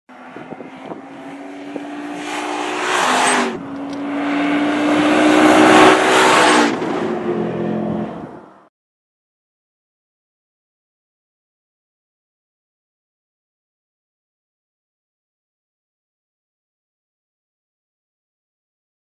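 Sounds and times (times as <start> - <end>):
car engine accelerating hard: 0.1 - 8.7.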